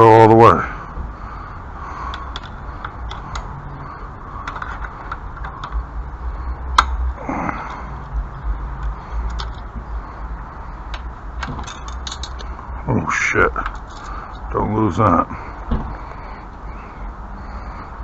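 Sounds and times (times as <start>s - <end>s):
low wind rumble: 0.0s - 18.0s
metallic clicks and taps of hardware: 2.1s - 3.5s, 8.8s - 9.7s.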